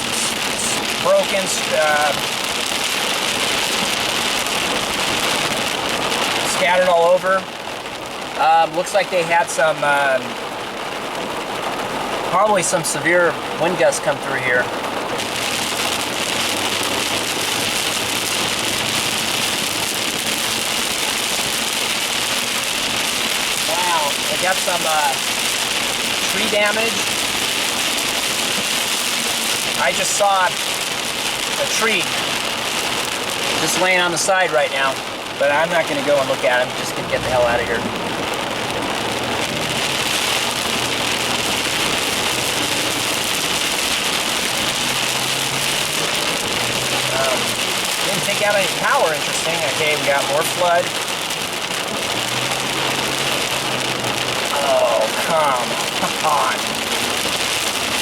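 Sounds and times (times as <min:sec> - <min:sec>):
rain falling on a car: 0:00.0 - 0:58.0
car engine running: 0:09.6 - 0:58.0.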